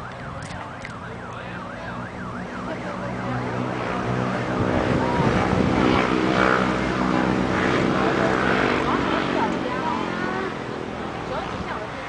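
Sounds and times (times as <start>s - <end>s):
emergency siren yelping: 0.0s - 5.5s.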